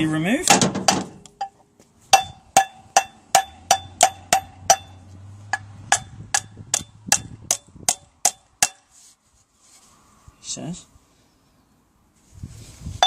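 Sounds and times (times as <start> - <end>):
hammer striking metal: 0.5 - 8.9.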